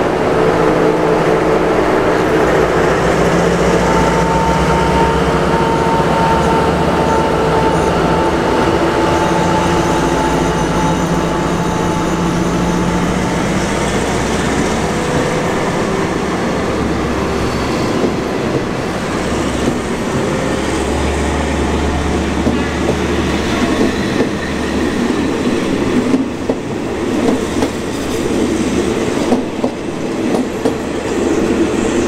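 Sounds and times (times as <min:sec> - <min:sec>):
locomotive engine drone: 0:00.0 - 0:32.0.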